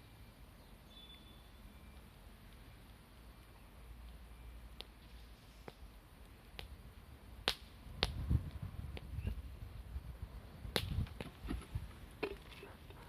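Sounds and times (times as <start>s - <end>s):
wood fire crackling: 0.3s - 13.0s
fire pops: 2.0s - 9.5s, 10.6s - 13.0s.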